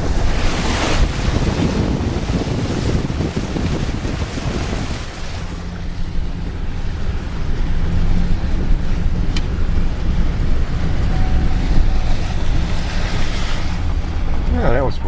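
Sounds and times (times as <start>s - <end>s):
vehicle engine and road rumble: 0.0s - 15.0s
wind buffeting microphone: 0.0s - 15.0s.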